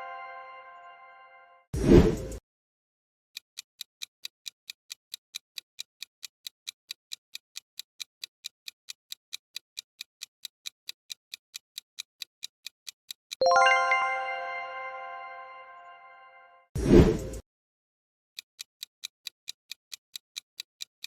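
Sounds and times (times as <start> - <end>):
countdown timer ticking: 13.4 - 16.4.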